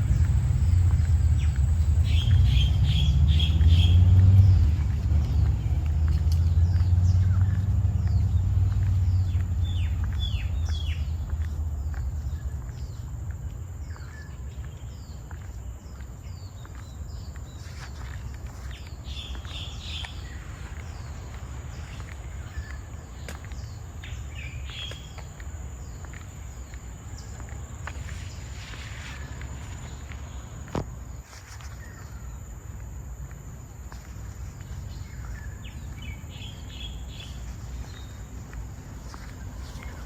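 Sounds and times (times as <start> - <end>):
downward-sweeping bird calls: 0.0 - 5.8
low rumble: 0.0 - 13.0.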